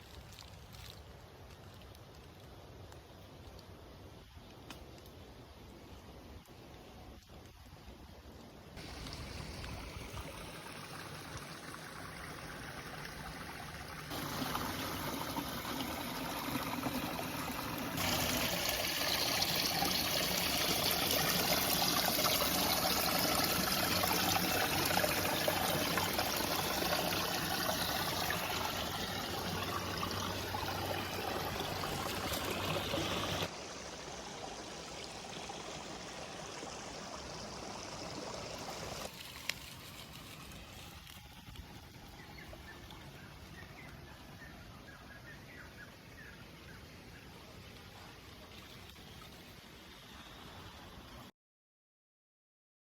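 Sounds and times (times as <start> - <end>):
stream water rushing: 8.8 - 44.5.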